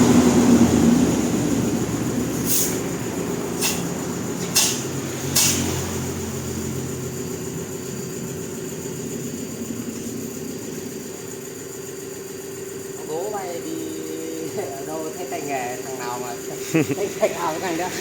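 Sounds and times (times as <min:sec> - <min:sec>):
engine idling: 0:00.0 - 0:18.0
sharp hissing bursts: 0:01.5 - 0:06.6.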